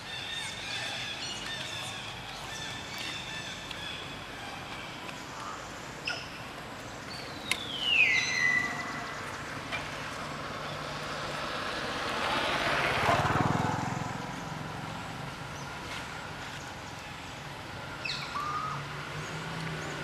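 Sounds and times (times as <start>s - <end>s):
motor vehicle passing by: 7.6s - 20.0s.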